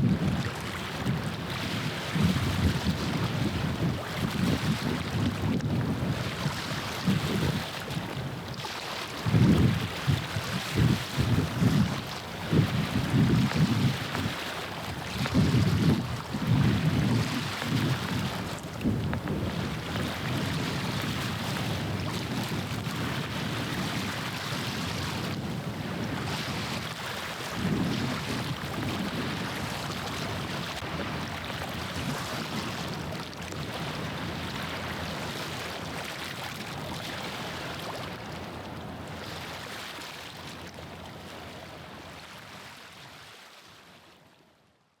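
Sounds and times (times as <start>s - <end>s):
wind rushing over microphone: 0.0s - 8.4s, 9.2s - 32.9s
waves washing at shoreline: 0.0s - 44.3s.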